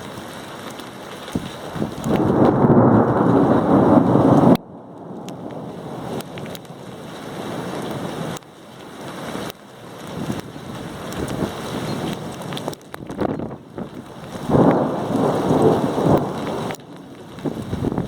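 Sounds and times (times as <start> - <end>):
steady rain: 0.0 - 18.0
ticks of raindrops: 0.0 - 18.0
wind on microphone: 1.3 - 6.7, 10.1 - 18.0
thunder rumble: 1.3 - 8.4, 10.2 - 18.0.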